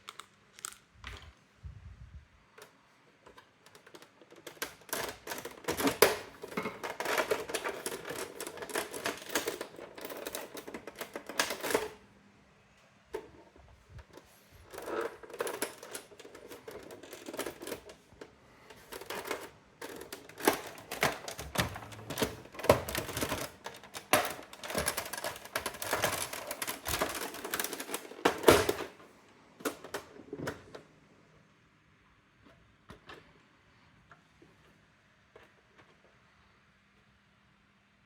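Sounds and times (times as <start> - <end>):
typewriter clacking: 3.7 - 12.0, 18.9 - 29.0.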